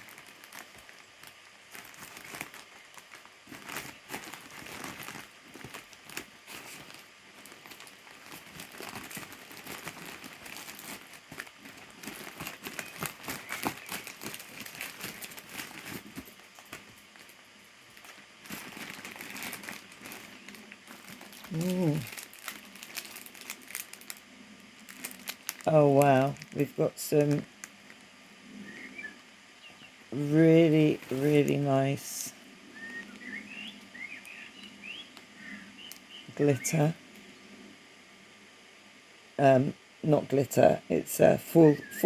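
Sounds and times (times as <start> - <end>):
packaging crinkling and rustling: 0.0 - 29.2, 30.2 - 36.9.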